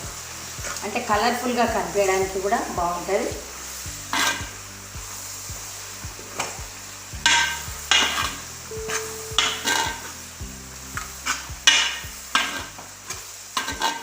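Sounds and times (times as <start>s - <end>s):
onions sizzling in oil: 0.0s - 14.0s
metal spatula scraping a pan: 4.1s - 4.5s, 7.2s - 10.2s, 11.2s - 14.0s.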